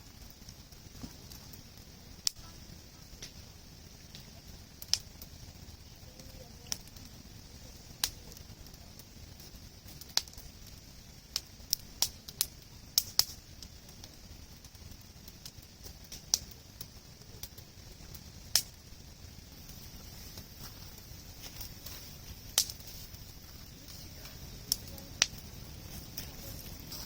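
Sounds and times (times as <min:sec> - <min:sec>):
campfire crackling and popping: 0:00.0 - 0:27.0
steady hiss: 0:00.0 - 0:27.0.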